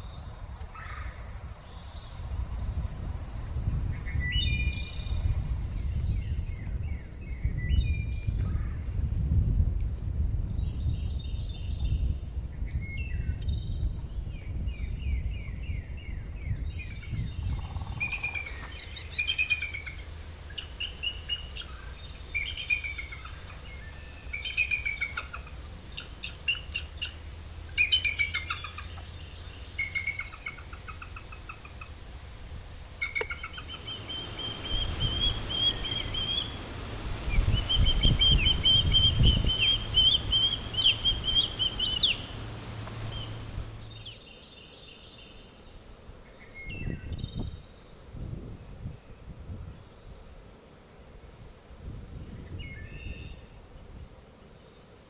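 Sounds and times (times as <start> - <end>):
birds chirping: 16.5 - 47.5
rapid high whistled chirps: 17.0 - 32.0, 33.0 - 44.0.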